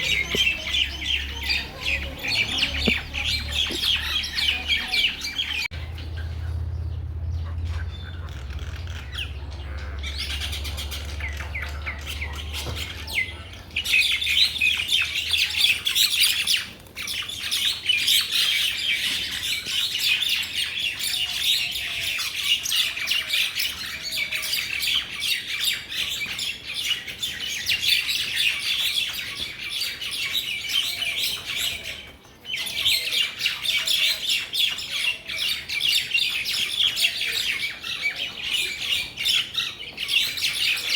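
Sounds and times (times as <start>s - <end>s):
mynas chattering: 0.0s - 6.7s.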